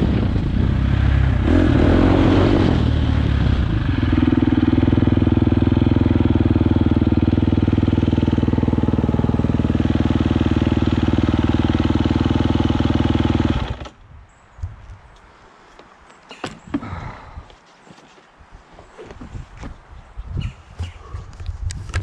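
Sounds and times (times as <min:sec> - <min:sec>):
dirt bike engine idling: 0:03.0 - 0:14.0.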